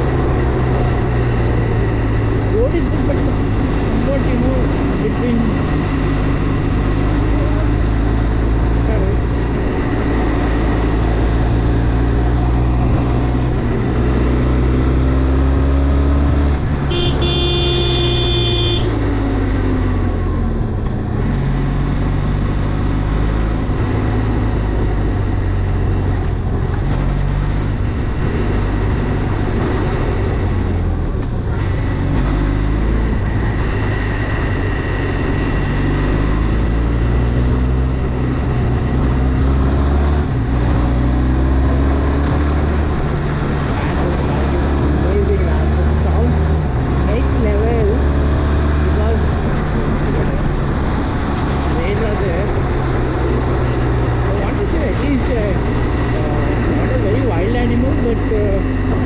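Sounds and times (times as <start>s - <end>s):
vehicle horn: 16.9s - 19.0s.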